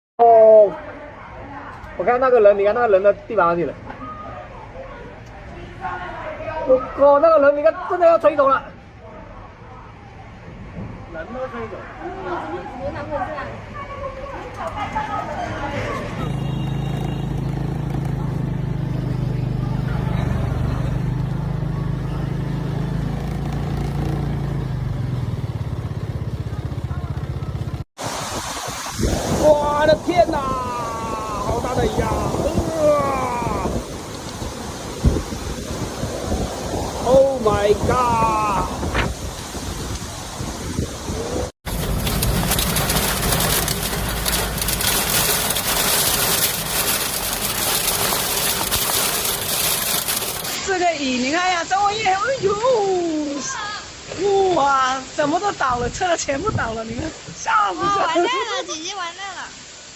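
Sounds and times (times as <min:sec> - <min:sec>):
heavy rain pouring: 0:12.0 - 0:59.9
engine humming and pulsing: 0:16.1 - 0:27.8, 0:41.7 - 0:50.6
wind rumbling on microphone: 0:25.7 - 0:50.7.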